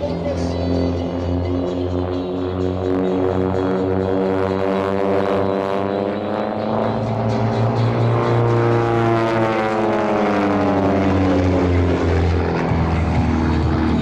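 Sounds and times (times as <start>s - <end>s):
propeller aircraft flying past: 0.0s - 14.0s.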